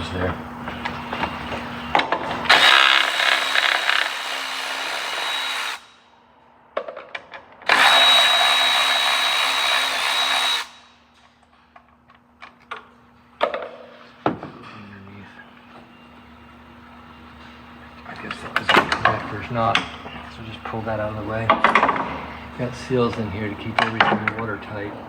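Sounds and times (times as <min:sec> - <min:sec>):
power tool whining: 0:00.0 - 0:06.0, 0:07.7 - 0:11.0.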